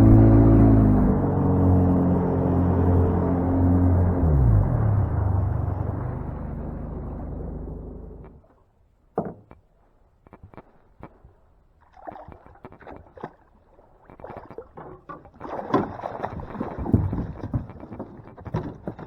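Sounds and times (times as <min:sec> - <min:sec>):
boat knocks and water splashes: 0:11.8 - 0:19.0.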